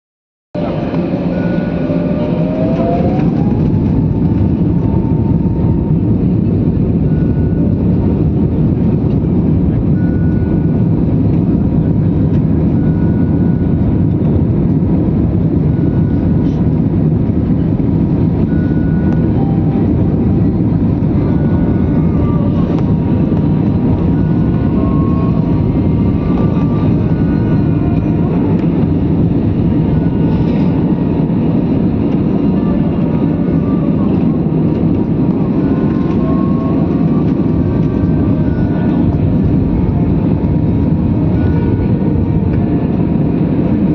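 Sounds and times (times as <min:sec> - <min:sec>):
airplane engines low rumble: 0:00.5 - 0:43.9.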